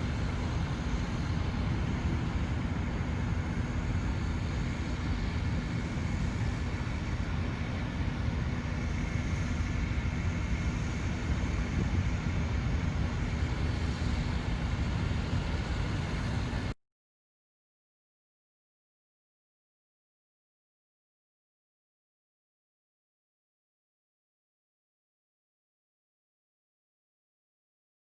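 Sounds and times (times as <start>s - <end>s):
faint constant hum: 0.0s - 16.8s
low engine-like rumble: 0.0s - 16.8s.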